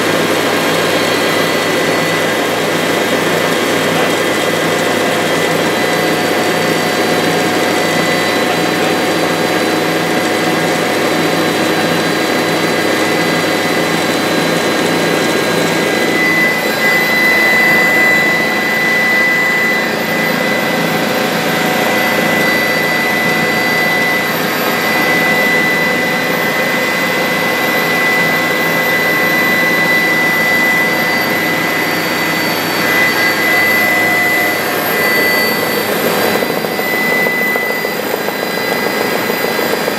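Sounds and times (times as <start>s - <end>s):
helicopter engine and rotor noise: 0.0s - 39.9s
high turbine whine: 0.0s - 39.9s.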